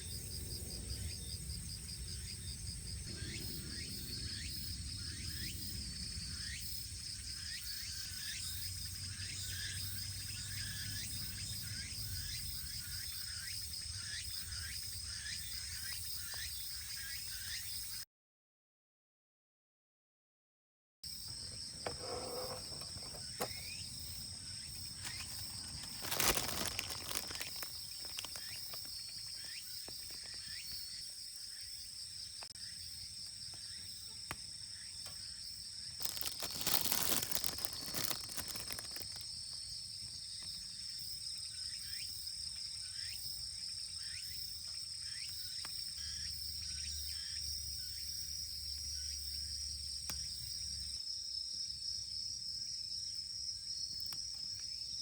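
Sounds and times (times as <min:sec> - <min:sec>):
insects trilling: 0:00.0 - 0:18.0, 0:21.1 - 0:55.0
plastic packaging crinkling: 0:24.9 - 0:30.4, 0:36.0 - 0:39.3.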